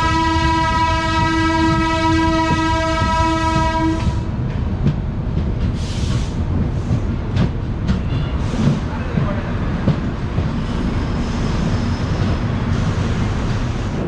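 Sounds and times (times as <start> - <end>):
train horn blast: 0.0 - 4.3
moving train rumble: 0.0 - 14.0.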